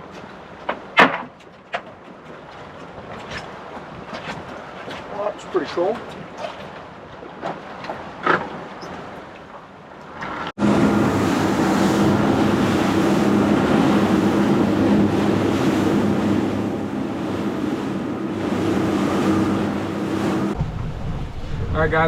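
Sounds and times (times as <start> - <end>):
rushing water: 0.0 - 22.0
wind: 0.0 - 22.0
boat engine running: 10.1 - 22.0.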